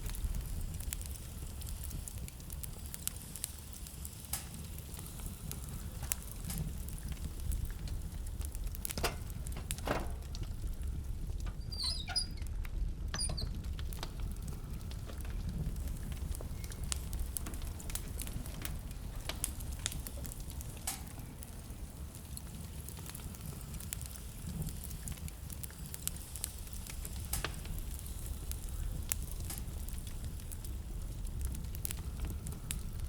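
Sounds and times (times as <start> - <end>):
wood fire crackling and popping: 0.0 - 33.0
high squeaks: 11.6 - 12.4.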